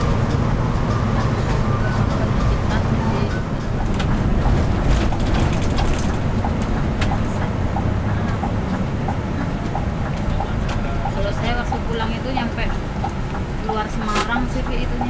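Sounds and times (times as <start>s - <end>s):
coach engine and road rumble: 0.0s - 15.0s
body rattles and knocks: 3.6s - 7.5s.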